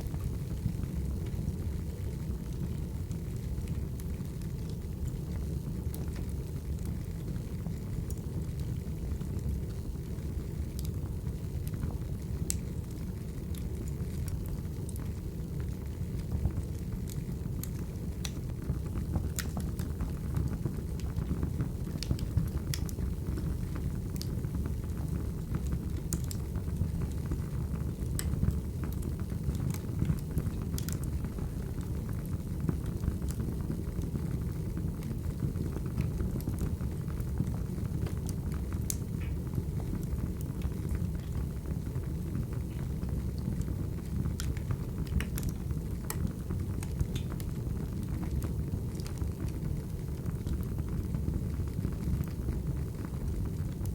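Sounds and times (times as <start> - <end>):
wood fire crackling and popping: 0.0 - 53.9.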